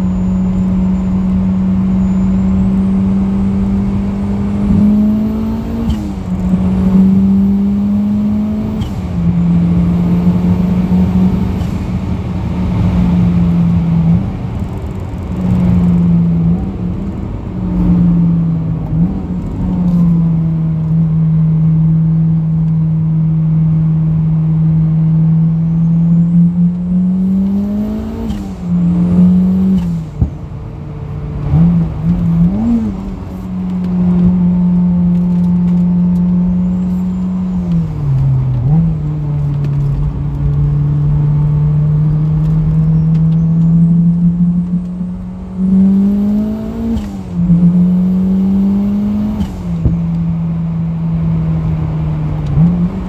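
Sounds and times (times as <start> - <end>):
faint high whistles: 0.0 - 3.3, 36.4 - 38.0, 42.7 - 43.8
car engine running hard: 0.0 - 53.0.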